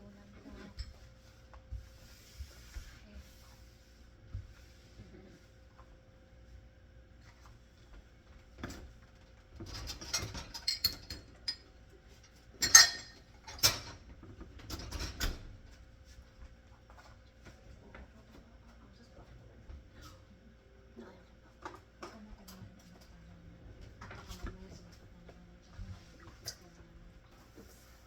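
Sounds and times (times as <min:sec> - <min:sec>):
dishes and cutlery clattering: 0:09.6 - 0:11.7, 0:12.5 - 0:15.4.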